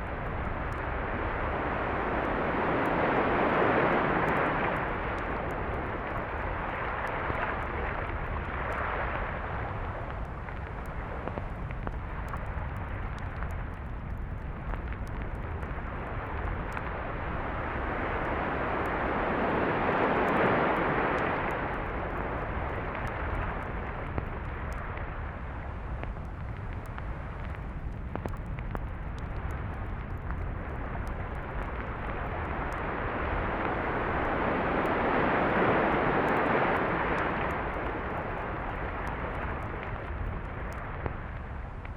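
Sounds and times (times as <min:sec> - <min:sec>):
steady low rumble: 0:00.0 - 0:41.9
surf washing onto beach: 0:31.5 - 0:39.9.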